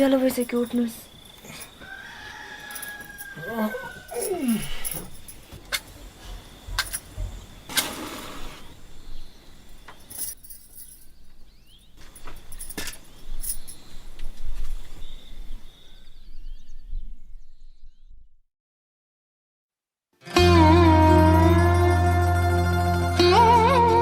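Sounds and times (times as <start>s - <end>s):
outdoor background noise: 0.0s - 18.2s.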